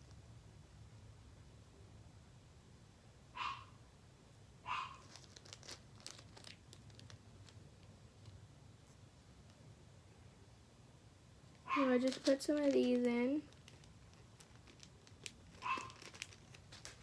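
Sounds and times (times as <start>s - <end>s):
plastic packaging crinkling: 5.0s - 8.4s, 11.8s - 17.0s
small clicks and crackles: 5.0s - 9.6s, 11.5s - 17.0s.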